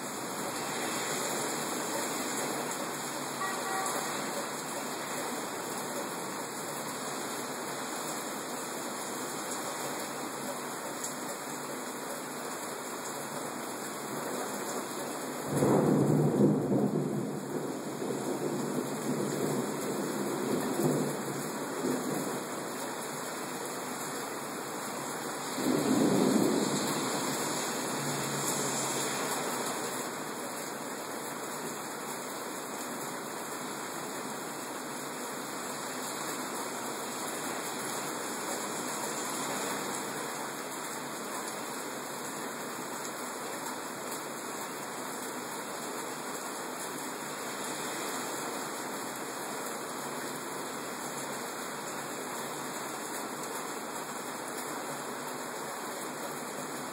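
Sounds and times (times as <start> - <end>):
heavy rain pouring: 0.0 - 56.9
thunder rumble: 25.6 - 28.6.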